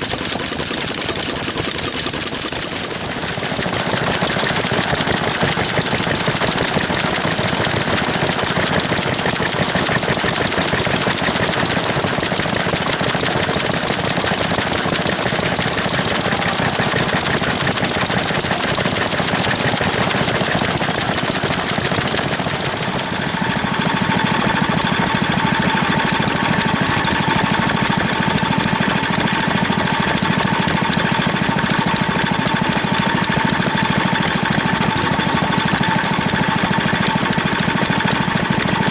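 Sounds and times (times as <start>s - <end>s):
stationary engines knocking: 0.0s - 38.9s.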